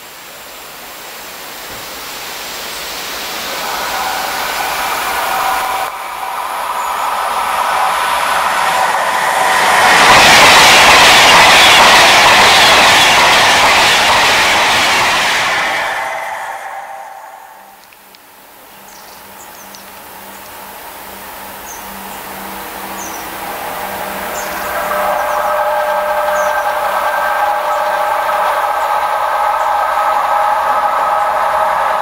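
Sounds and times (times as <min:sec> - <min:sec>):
express train rushing clatter: 0:00.6 - 0:32.0
faint steady whine: 0:16.7 - 0:32.0.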